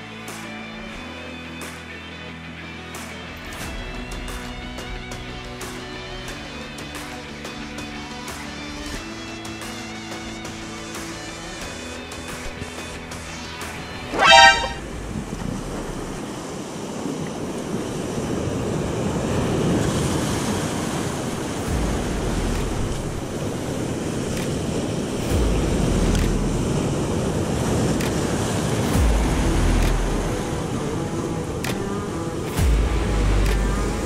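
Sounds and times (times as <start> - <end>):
horn-like toot: 14.1 - 14.9.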